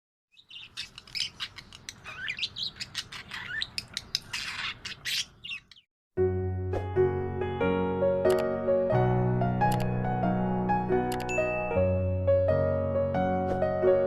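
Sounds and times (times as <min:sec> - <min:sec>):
budgerigar chattering: 0:00.4 - 0:05.8.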